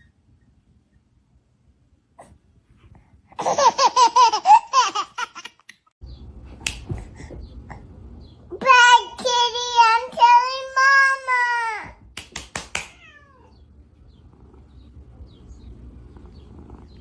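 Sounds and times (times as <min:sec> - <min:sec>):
baby laughing: 0:03.4 - 0:05.9
child's high voice: 0:08.5 - 0:12.0.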